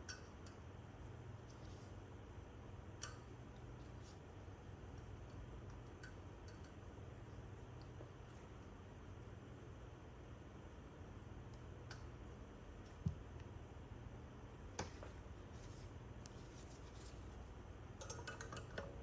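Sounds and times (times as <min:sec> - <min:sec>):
quiet low hum: 0:00.0 - 0:19.0
small metal parts clicking: 0:18.0 - 0:18.9.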